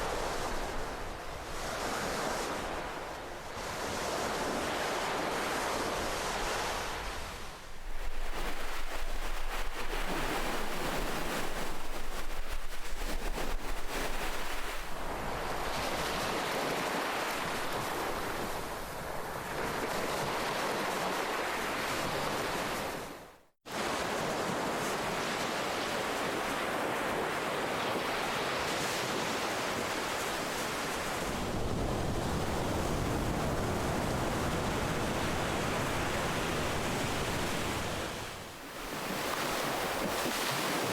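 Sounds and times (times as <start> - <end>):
ocean waves on shore: 0.0 - 40.9.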